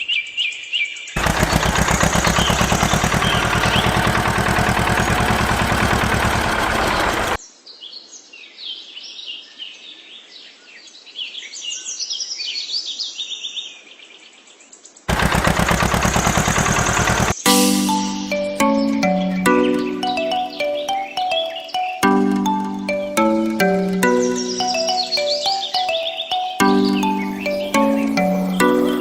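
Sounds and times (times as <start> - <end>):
birds chirping: 1.2 - 7.4, 15.1 - 29.0
power tool rattling: 1.2 - 7.4, 15.1 - 17.4.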